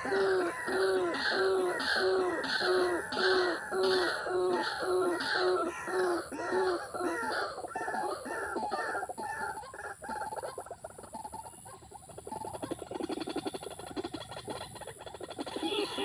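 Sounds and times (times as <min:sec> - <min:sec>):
bird calls: 0:00.0 - 0:16.0.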